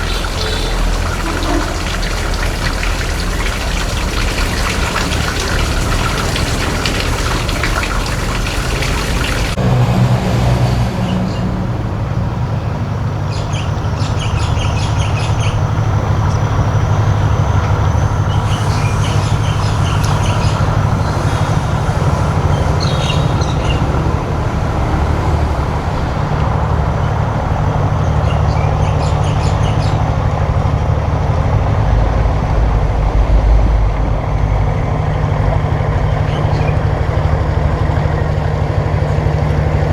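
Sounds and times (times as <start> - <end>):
rushing hiss of water: 0.0 - 9.6, 14.9 - 30.1
boat engine droning: 0.0 - 39.9.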